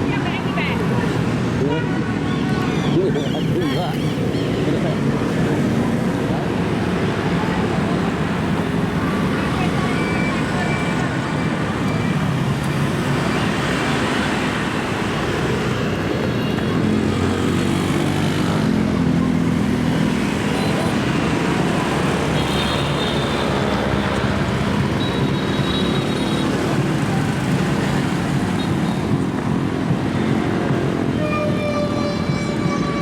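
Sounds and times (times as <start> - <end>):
motorbikes running: 0.0 - 33.0.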